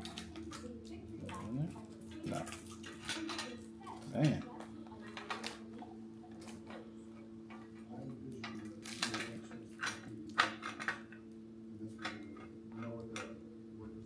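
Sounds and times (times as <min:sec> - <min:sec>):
steady low hum: 0:00.0 - 0:14.0
hard parts clicking and knocking: 0:08.4 - 0:11.2.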